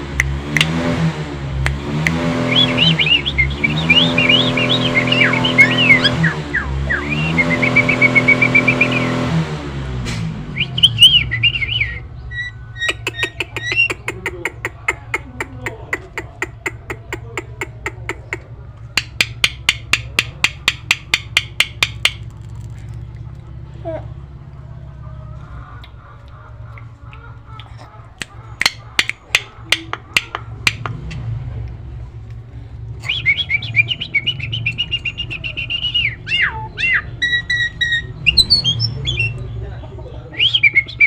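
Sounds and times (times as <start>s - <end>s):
high bird chirps: 2.4s - 9.2s, 10.5s - 14.2s, 33.0s - 41.0s
loud bird whistles: 2.4s - 9.2s, 10.5s - 14.0s, 33.0s - 39.4s, 40.4s - 41.0s
sharp rapid clicks: 19.0s - 22.5s, 28.2s - 31.0s.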